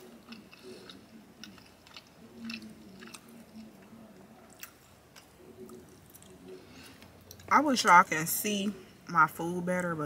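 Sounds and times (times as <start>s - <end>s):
wet chewing mouth clicks: 0.0s - 3.9s.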